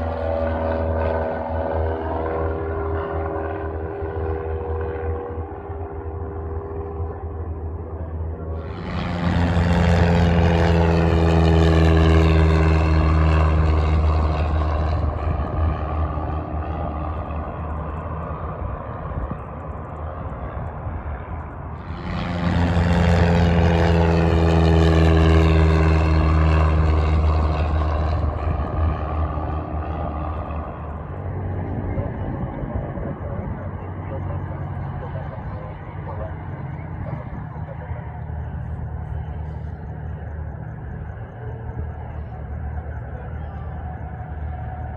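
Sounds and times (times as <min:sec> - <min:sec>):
light aircraft engine drone: 0:00.0 - 0:44.9.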